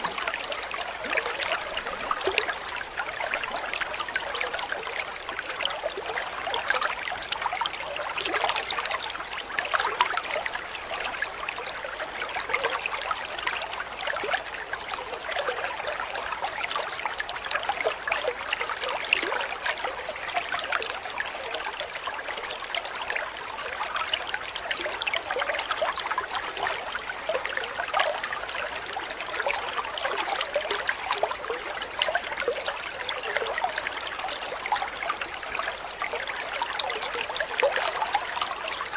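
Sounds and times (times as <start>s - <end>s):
water trickling and babbling: 0.0s - 38.9s.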